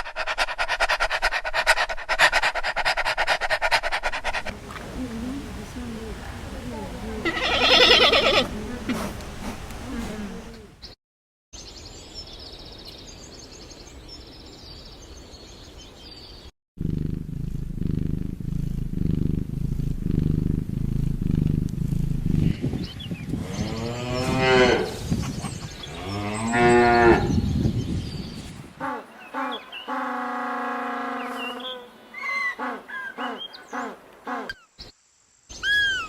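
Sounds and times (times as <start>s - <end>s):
low pulsing rumble: 16.8s - 25.3s.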